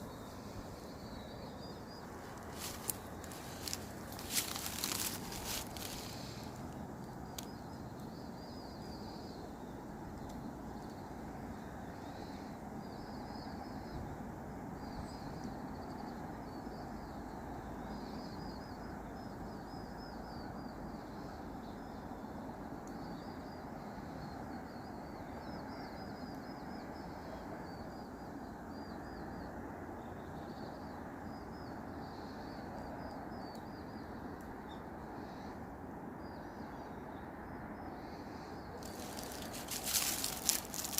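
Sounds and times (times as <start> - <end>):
small birds chirping: 0.0 - 12.4, 37.9 - 40.9
steady background hiss: 0.0 - 40.9.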